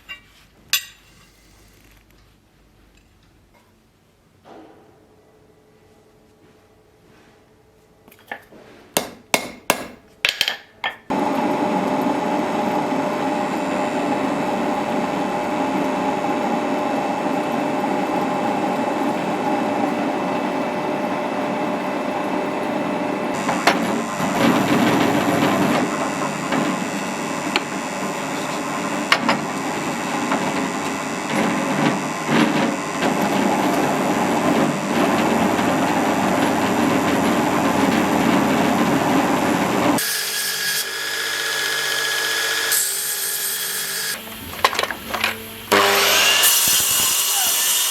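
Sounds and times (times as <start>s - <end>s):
electric power tool running: 11.1s - 47.9s.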